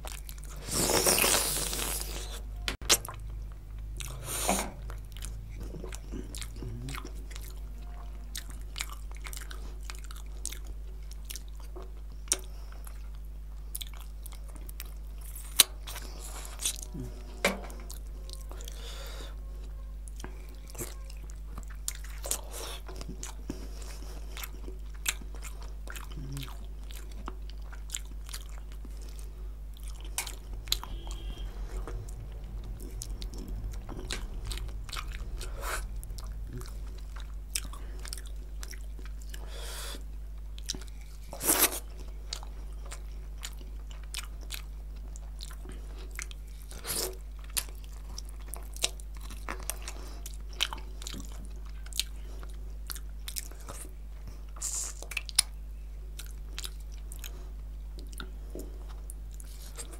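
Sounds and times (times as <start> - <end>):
chewing and wet mouth sounds: 0.0 - 59.9
steady low hum: 0.0 - 59.9.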